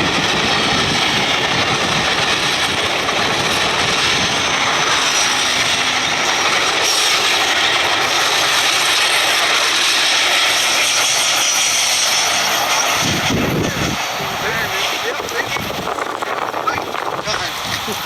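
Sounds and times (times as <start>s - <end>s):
train wheels on rail: 0.0s - 18.0s.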